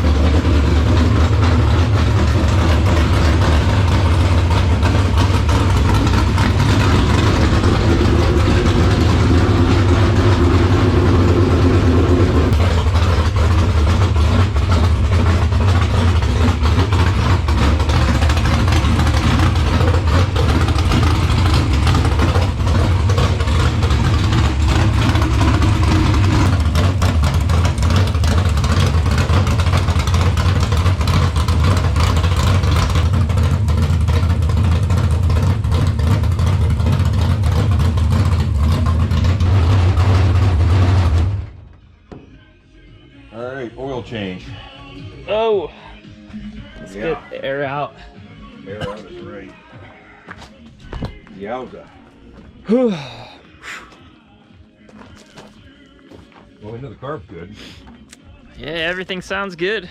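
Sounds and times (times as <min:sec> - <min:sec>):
racing engine idling: 0:00.0 - 0:42.2, 0:57.9 - 0:59.9.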